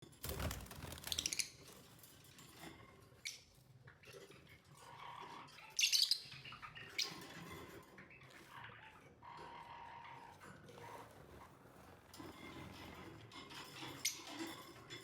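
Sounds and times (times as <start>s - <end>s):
lovebirds chirping: 5.6s - 7.3s.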